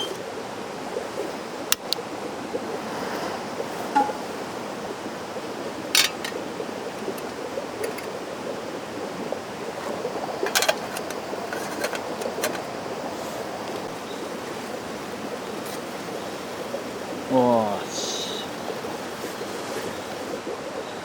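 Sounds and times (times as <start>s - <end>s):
stream rushing: 0.0s - 21.0s
sharp clicks and knocks: 1.7s - 2.0s, 6.0s - 8.2s, 9.8s - 12.7s.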